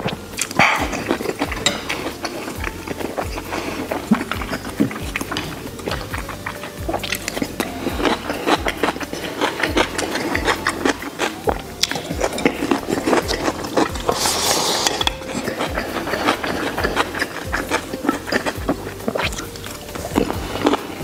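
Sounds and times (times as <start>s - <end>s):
crunchy wet chewing: 0.0s - 21.0s.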